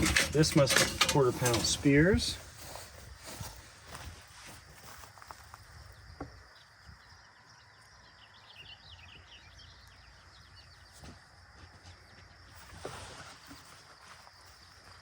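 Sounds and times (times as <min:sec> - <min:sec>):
songbird twittering chirps: 0:04.8 - 0:15.0.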